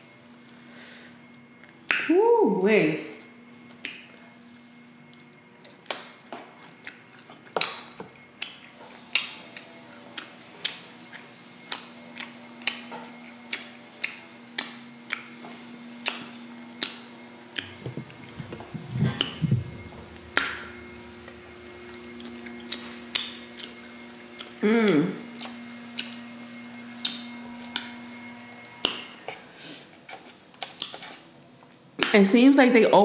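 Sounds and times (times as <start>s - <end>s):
faint steady hum: 0.0s - 33.0s
wet chewing and lip smacks: 5.0s - 15.4s, 16.0s - 19.5s, 20.3s - 24.6s, 25.3s - 29.4s, 30.0s - 31.0s.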